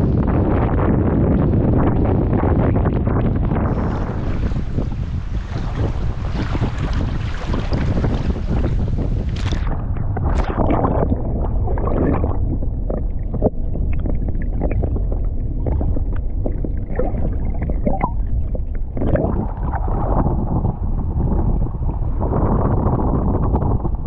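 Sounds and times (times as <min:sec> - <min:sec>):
wind buffeting microphone: 0:00.0 - 0:24.0
water slapping against boat hull: 0:03.8 - 0:12.4.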